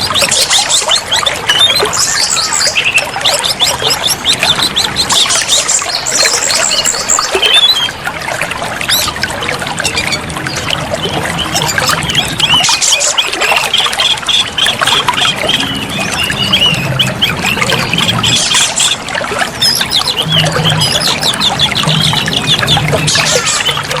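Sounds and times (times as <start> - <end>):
bird song chirps and trills: 0.0 - 24.0
running water trickle: 0.0 - 24.0.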